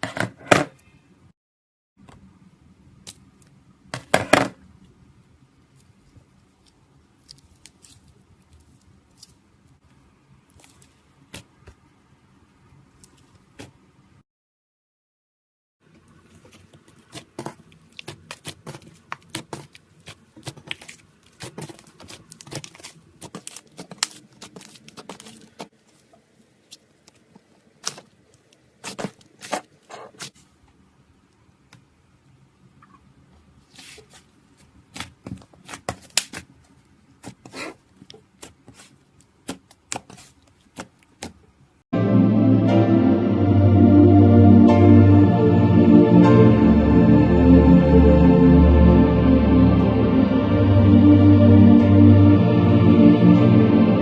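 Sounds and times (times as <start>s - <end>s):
slime ball crackling and tearing: 6.6s - 9.4s, 16.4s - 25.7s.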